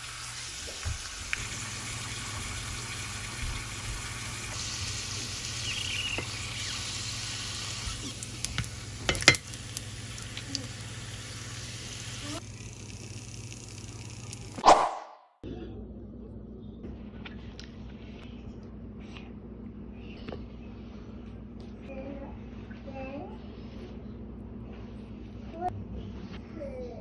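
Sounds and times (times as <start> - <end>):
tortilla sizzling in oil: 0.0 - 14.6.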